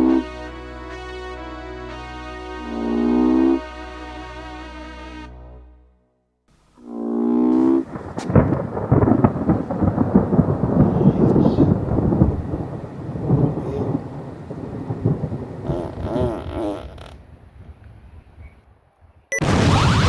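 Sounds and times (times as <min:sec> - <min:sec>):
thunder rumbling and crackling: 0:07.2 - 0:18.5, 0:19.4 - 0:20.0.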